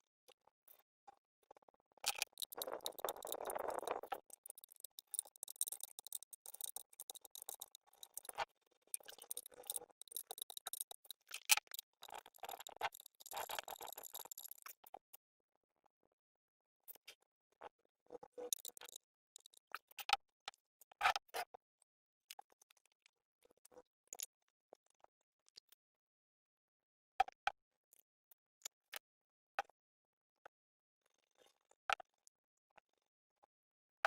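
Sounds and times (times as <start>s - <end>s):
clicks taps and light rattles: 2.1s - 8.4s, 9.0s - 14.6s.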